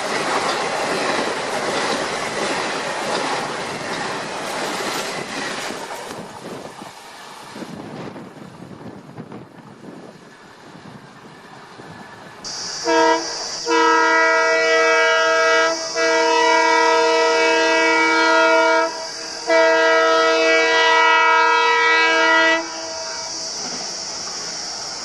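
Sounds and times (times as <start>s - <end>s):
steady hiss: 0.0s - 25.0s
train horn blasts: 12.5s - 23.8s.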